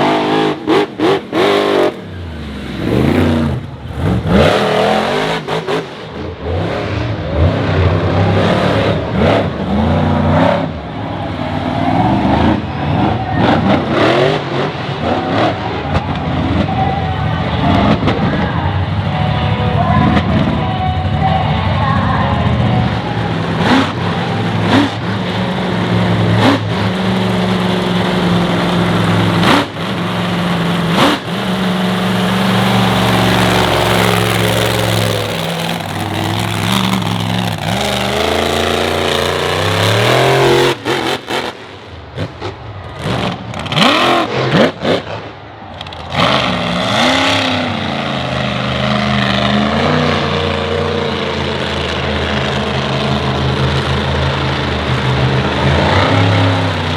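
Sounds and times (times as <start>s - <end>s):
truck engine revving: 0.0s - 56.9s.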